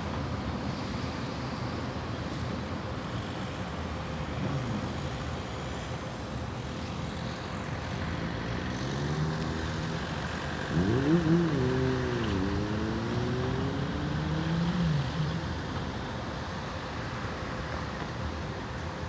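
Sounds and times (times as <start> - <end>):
road traffic rumble: 0.0 - 19.0
vehicle engine revving: 7.7 - 16.2.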